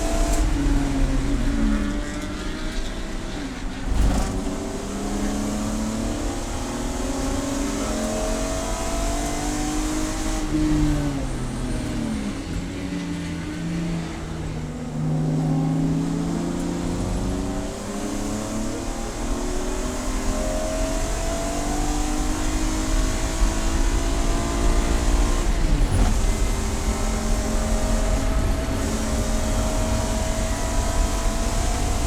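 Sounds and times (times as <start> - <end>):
race car engine revving: 0.0 - 32.0.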